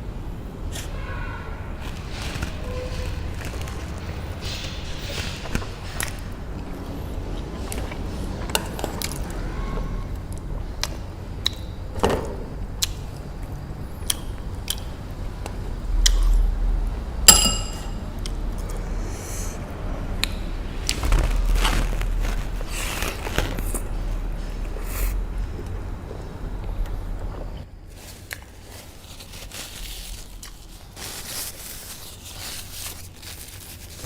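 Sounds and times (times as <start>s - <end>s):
ringing clink: 17.3s - 18.0s.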